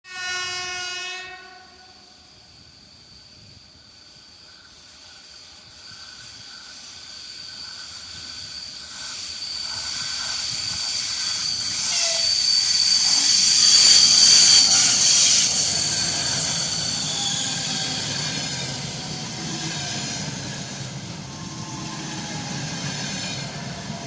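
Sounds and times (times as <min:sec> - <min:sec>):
locomotive horn blast: 0:00.1 - 0:01.9
approaching train: 0:00.1 - 0:24.0
high-pitched whine: 0:05.7 - 0:24.0.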